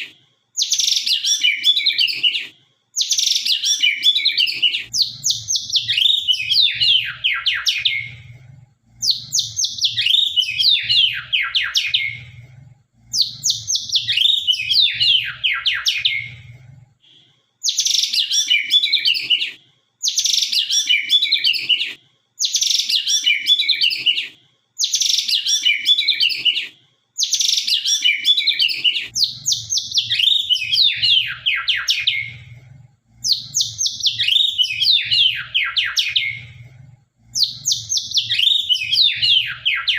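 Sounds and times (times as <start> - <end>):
bird singing whistled phrases: 27.2 - 32.3, 33.3 - 36.4, 37.4 - 39.9.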